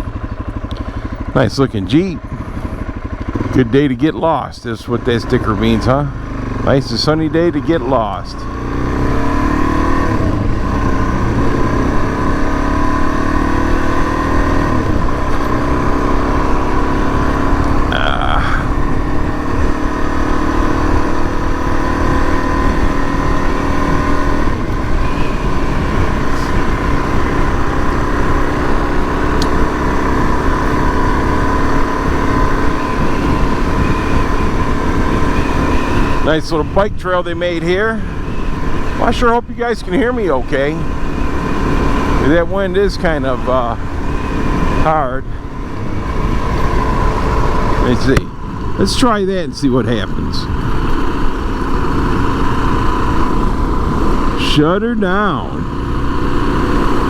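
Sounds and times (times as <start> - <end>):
motorcycle engine running: 0.0 - 57.0
wind rumbling on microphone: 2.1 - 3.5, 14.2 - 39.8, 40.4 - 49.3, 49.9 - 54.4.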